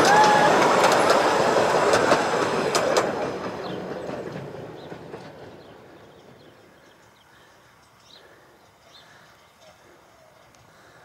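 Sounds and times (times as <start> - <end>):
miniature train running: 0.0 - 7.1
wheels clicking over rail joints: 0.0 - 8.8.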